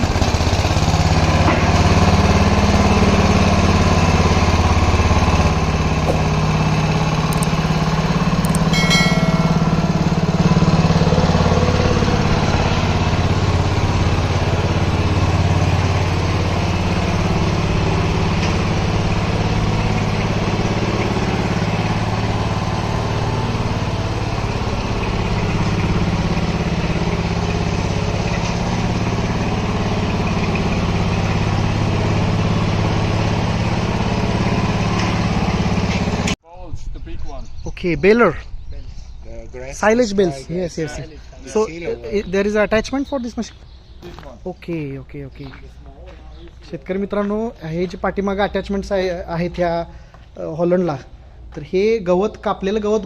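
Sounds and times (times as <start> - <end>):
engine running steadily: 0.0 - 36.4.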